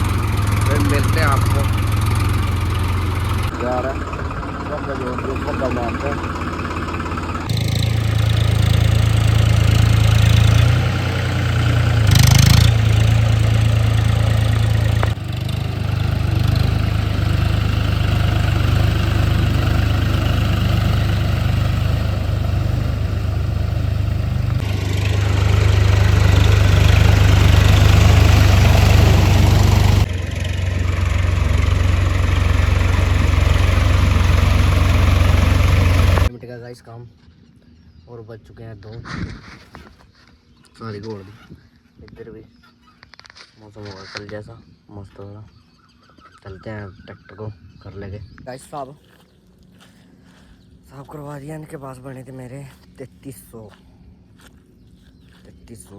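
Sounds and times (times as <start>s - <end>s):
tractor diesel engine running: 0.0s - 36.3s.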